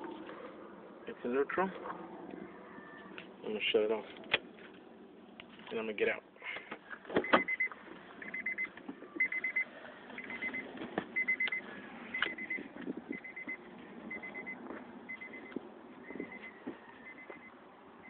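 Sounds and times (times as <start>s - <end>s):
car door warning chime beeping: 7.2s - 10.6s, 11.2s - 17.6s.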